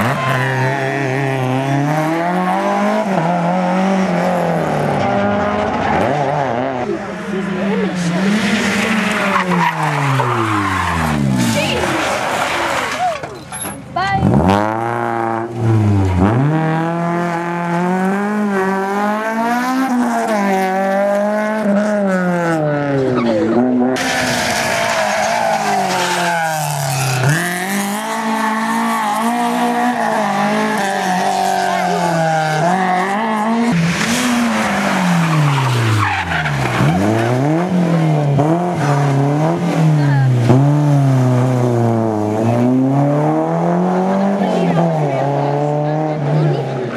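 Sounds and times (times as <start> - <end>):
rally car engine revving: 0.0 - 13.2, 14.0 - 46.9
tyres squealing: 24.0 - 32.6.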